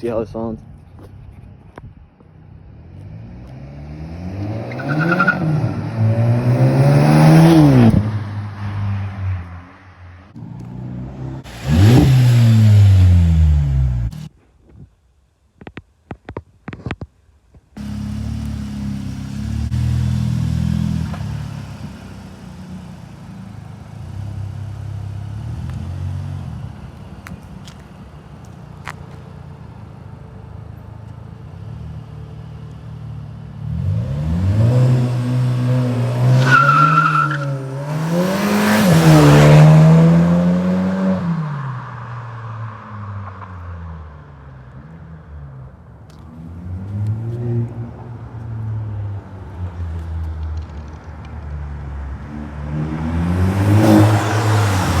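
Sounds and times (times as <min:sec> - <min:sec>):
car engine accelerating: 0:02.6 - 0:14.3, 0:17.8 - 0:28.2, 0:30.6 - 0:51.6, 0:52.2 - 0:55.0.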